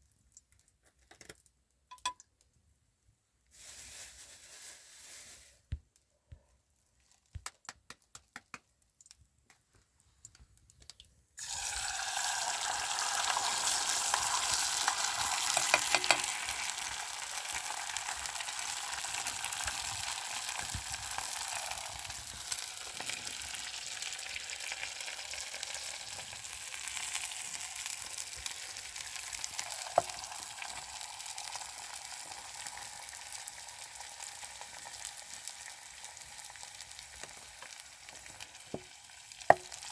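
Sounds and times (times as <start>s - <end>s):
food sizzling in hot oil: 11.4s - 39.9s.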